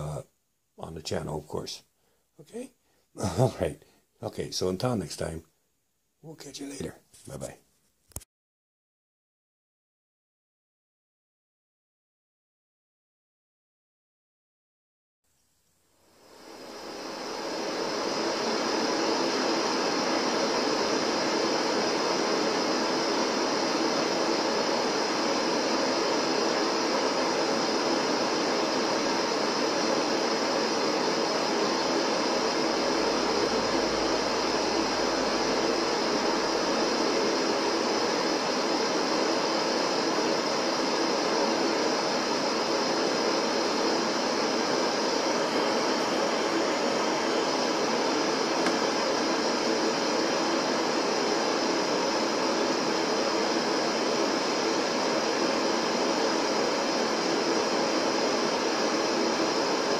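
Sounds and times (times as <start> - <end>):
steady noise hiss: 0.0 - 8.2, 15.3 - 59.9
faint low rumble: 32.7 - 37.0.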